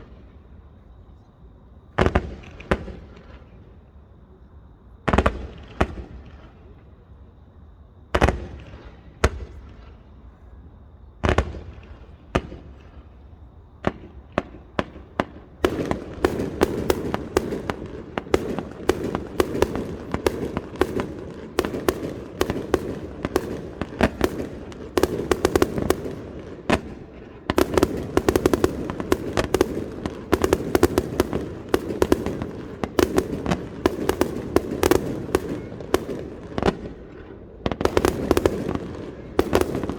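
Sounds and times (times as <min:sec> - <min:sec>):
fireworks crackling: 0:13.8 - 0:39.9
rapid firework cracks: 0:13.8 - 0:39.9.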